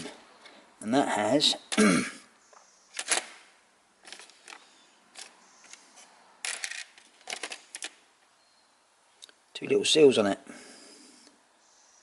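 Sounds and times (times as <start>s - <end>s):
small metal parts clicking: 4.0s - 5.8s, 6.4s - 8.0s.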